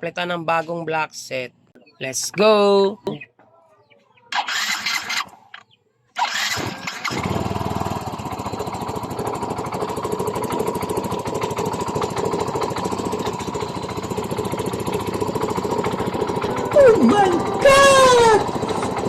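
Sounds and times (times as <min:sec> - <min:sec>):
scooter engine starting and idling: 0:04.3 - 0:19.0.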